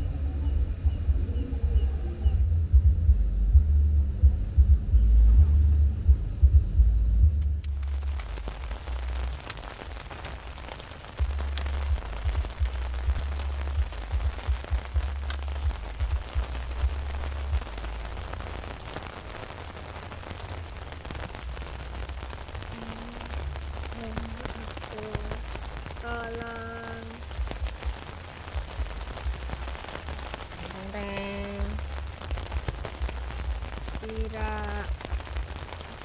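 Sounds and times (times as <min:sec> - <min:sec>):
rain on a tent: 0:00.0 - 0:03.6, 0:07.2 - 0:36.0.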